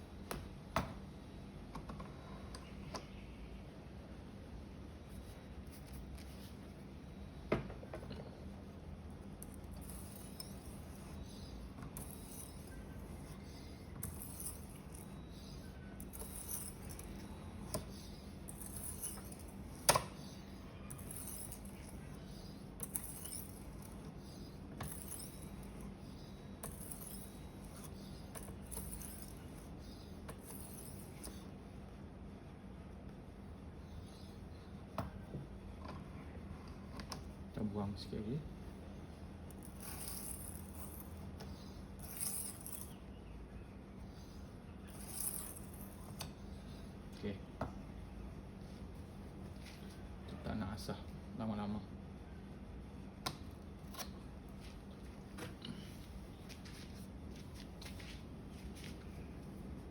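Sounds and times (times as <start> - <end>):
knife scraping on whetstone: 9.4 - 31.4.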